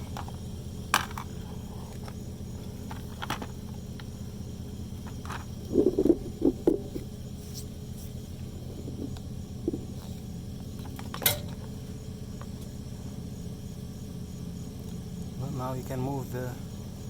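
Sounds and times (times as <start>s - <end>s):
steady low hum: 0.0s - 17.0s
metal parts clanking: 10.9s - 11.6s.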